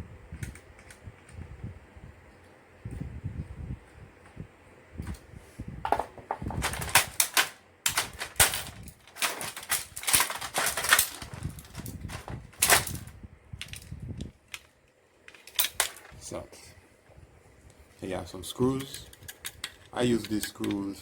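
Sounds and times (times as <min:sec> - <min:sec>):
plastic and metal parts clicking: 0:06.5 - 0:16.2, 0:18.8 - 0:20.9.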